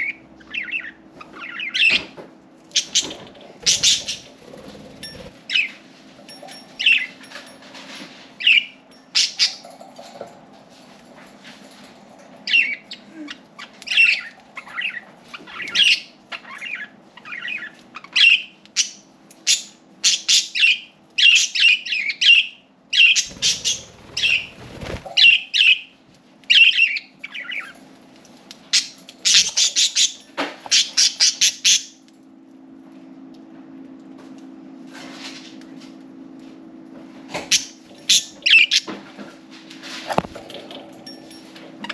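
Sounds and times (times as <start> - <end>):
budgerigars chirping and squawking: 0.0 - 2.1, 2.7 - 5.8, 12.4 - 25.8, 28.8 - 32.0.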